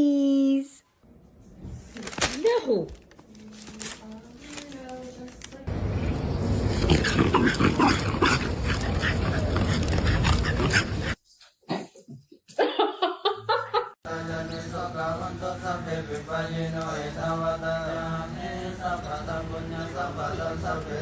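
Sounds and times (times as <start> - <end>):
dog vocalizing: 6.7 - 11.2
steady chant-like tone: 14.0 - 21.0.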